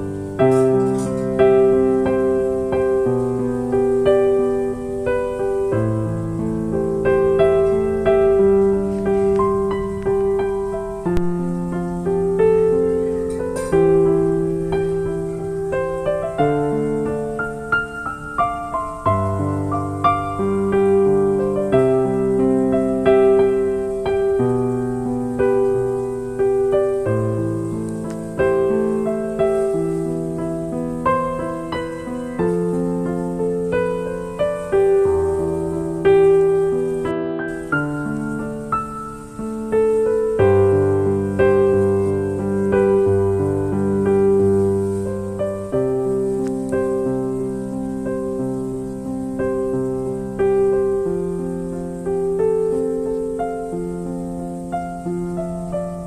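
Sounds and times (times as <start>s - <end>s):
gentle solo piano: 0.0s - 56.0s.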